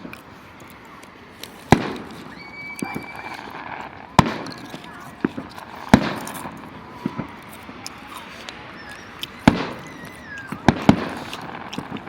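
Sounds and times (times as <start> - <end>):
faint firework whistling: 0.0 - 12.0
fireworks bangs: 0.0 - 12.0.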